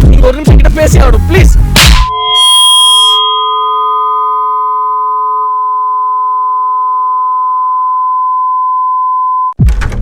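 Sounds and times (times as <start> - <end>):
bell-like ringing tone: 2.1 - 9.5.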